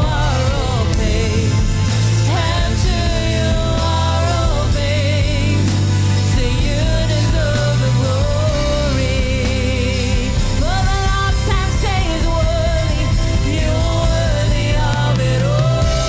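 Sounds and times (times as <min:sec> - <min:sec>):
bass: 0:00.0 - 0:16.0
person singing with vibrato: 0:00.0 - 0:16.0
sustained keyboard chords: 0:00.0 - 0:16.0.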